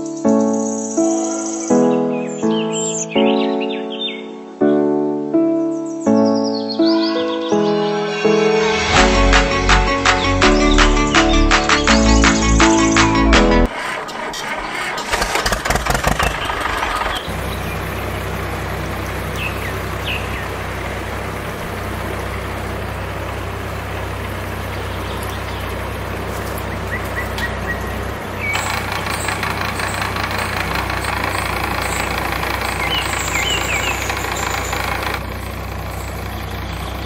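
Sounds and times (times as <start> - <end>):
small tractor engine running: 13.6 - 37.0.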